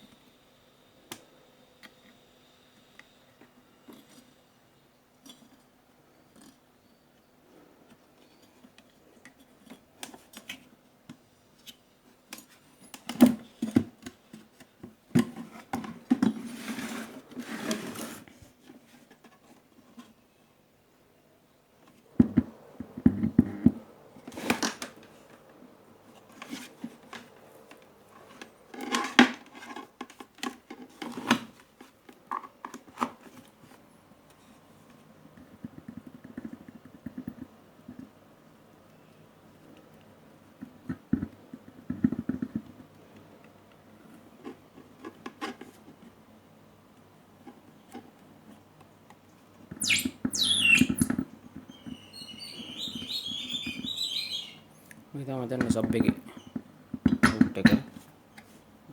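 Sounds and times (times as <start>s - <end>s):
rustling: 21.8s - 32.0s.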